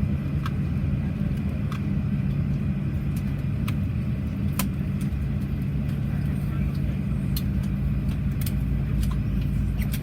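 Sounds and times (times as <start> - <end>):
aircraft cabin hum: 0.0 - 10.0.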